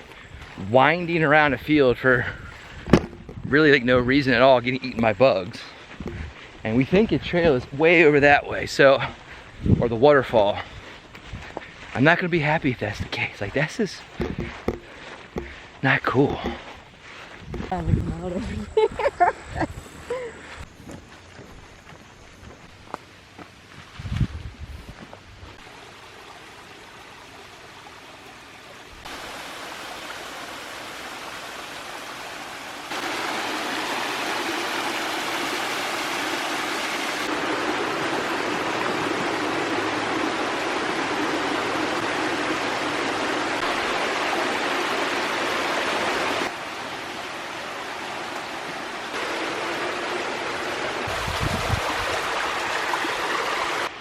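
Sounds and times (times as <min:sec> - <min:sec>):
water rushing over rocks: 0:25.6 - 0:54.0.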